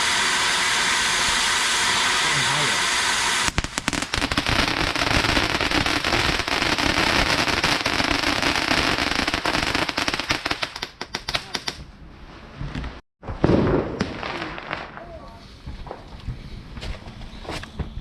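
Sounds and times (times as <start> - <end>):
hiss: 0.0 - 10.1
fireworks crackling: 0.0 - 11.9, 13.2 - 16.3.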